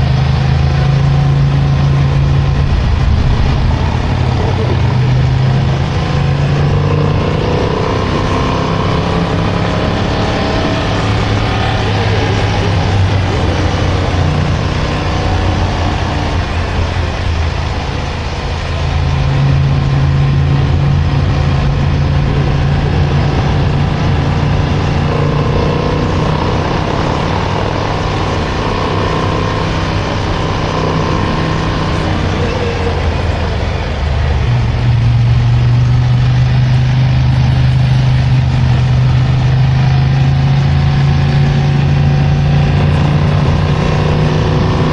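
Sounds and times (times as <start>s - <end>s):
motorcycle engine running: 0.0s - 44.9s
wind and road noise: 0.0s - 44.9s.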